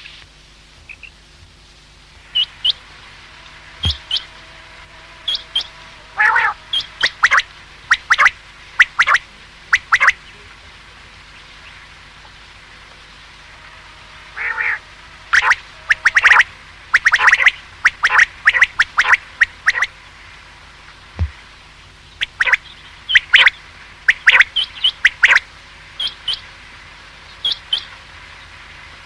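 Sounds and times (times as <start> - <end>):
quail calling: 3.8 - 4.3, 6.2 - 10.2, 14.4 - 19.9, 22.2 - 23.5, 24.1 - 25.4.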